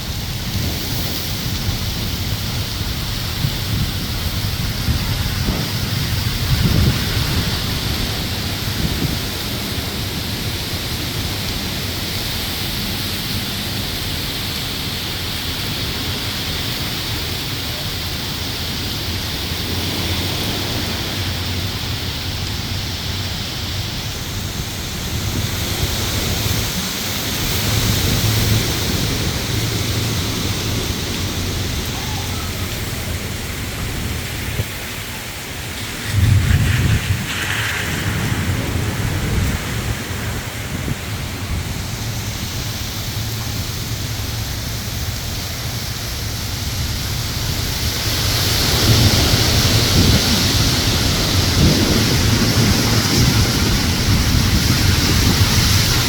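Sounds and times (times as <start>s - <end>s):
heavy rain: 0.0s - 56.0s
thunder rumbling: 0.0s - 56.0s.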